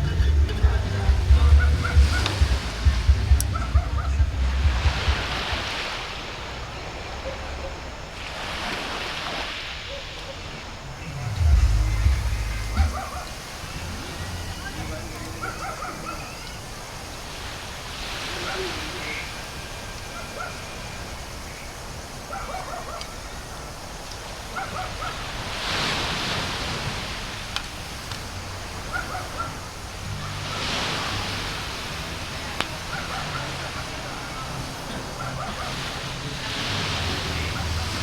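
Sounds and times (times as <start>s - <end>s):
sea waves breaking on beach: 0.0s - 38.0s.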